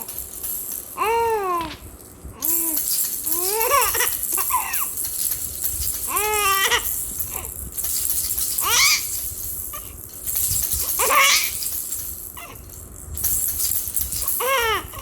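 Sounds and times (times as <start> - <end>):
baby rattle shaking: 0.0 - 15.0
baby laughing: 3.3 - 4.9.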